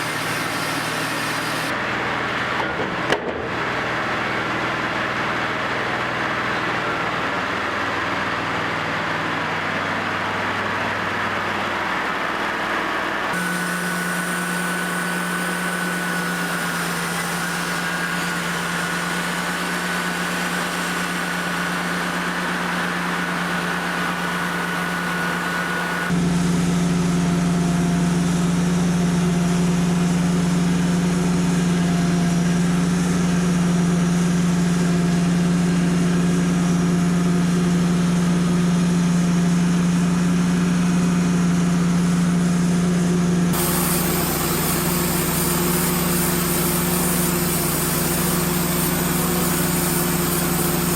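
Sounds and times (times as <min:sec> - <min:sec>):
bandsaw mill engine humming: 0:00.0 - 0:50.9
thin high whine: 0:13.4 - 0:26.2.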